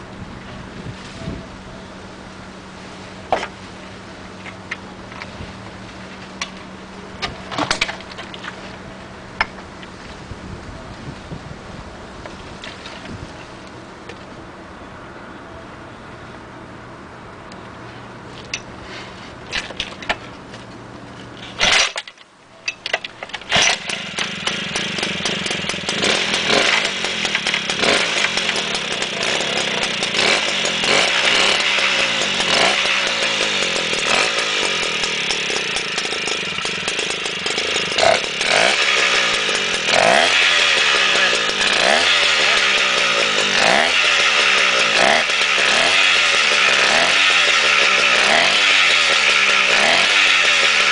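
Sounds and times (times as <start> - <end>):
engine sharp pops: 7.2 - 8.6
two-stroke stationary engine running: 23.4 - 50.9.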